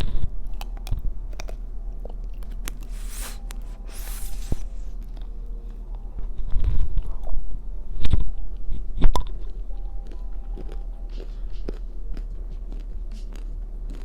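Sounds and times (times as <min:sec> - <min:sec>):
person chewing crunchy food: 0:00.5 - 0:05.2, 0:10.0 - 0:14.0.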